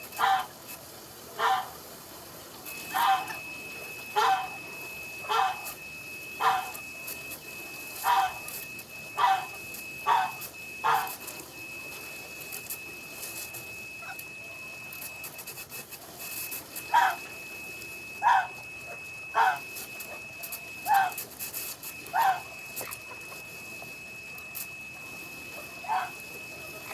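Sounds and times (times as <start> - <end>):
thin high whine: 0.0 - 26.9
dog yelping: 0.2 - 0.5, 1.4 - 1.7, 2.9 - 3.4, 4.2 - 4.6, 5.3 - 5.7, 6.4 - 6.8, 8.0 - 8.4, 9.2 - 11.2, 16.9 - 17.3, 18.2 - 18.6, 19.4 - 19.7, 20.8 - 21.2, 22.1 - 22.5, 25.8 - 26.2.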